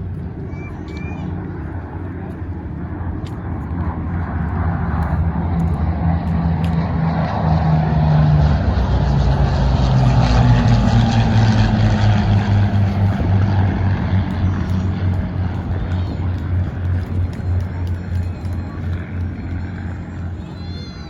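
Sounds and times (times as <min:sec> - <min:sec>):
propeller aircraft flying past: 0:00.0 - 0:21.0.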